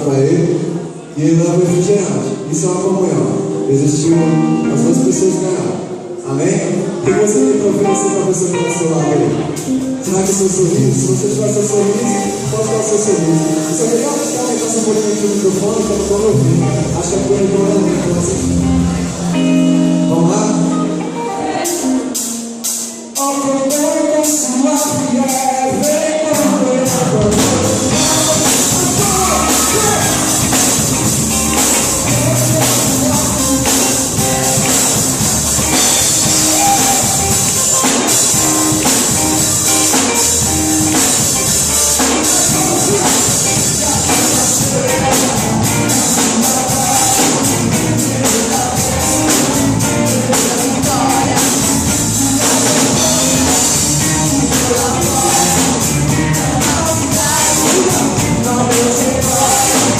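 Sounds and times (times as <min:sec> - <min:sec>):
worship band playing: 0:00.0 - 0:59.9
people singing: 0:23.7 - 0:59.9
steady drum beat: 0:24.8 - 0:59.9.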